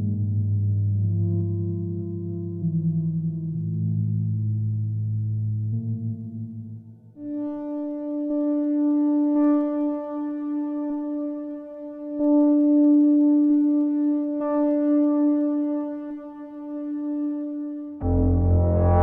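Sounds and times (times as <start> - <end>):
synthesizer sustained note: 18.0 - 19.0.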